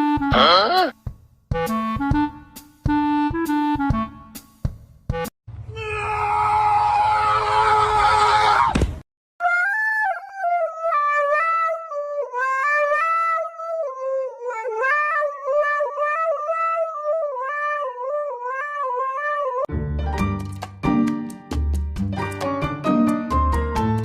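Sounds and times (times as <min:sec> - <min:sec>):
cat yowling: 0:17.3 - 0:19.7.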